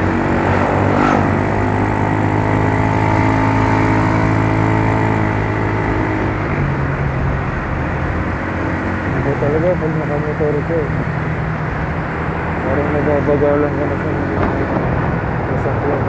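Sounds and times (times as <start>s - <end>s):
scooter engine running: 0.0s - 6.6s
road and traffic noise: 0.0s - 16.0s.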